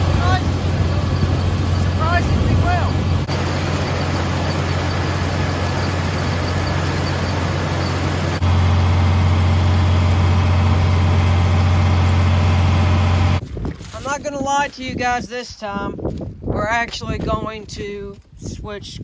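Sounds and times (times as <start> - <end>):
tractor engine running: 0.0 - 14.6.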